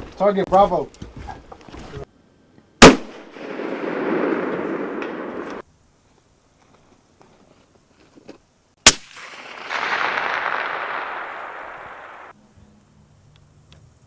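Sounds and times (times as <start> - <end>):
rifle shot: 2.8 - 5.6, 8.8 - 12.3.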